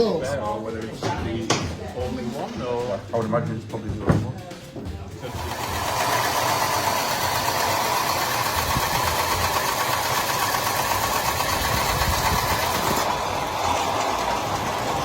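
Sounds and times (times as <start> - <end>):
small machine rattling: 5.2 - 15.0.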